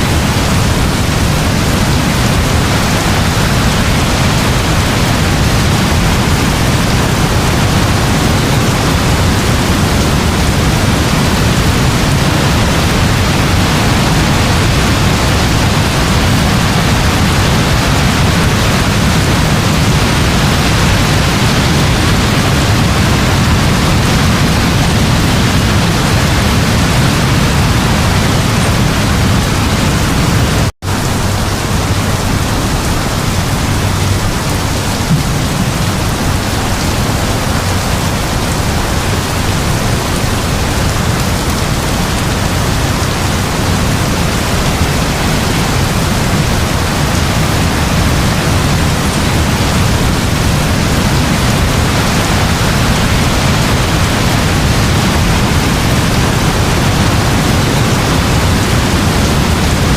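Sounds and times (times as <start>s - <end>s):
heavy rain hiss: 0.0s - 59.9s.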